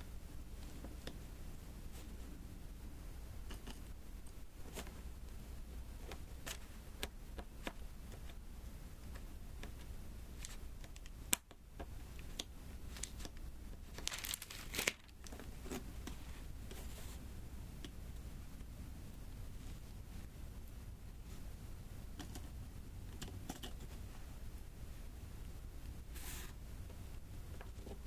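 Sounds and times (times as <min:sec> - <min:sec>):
crinkly tearing sound: 0:12.9 - 0:15.8.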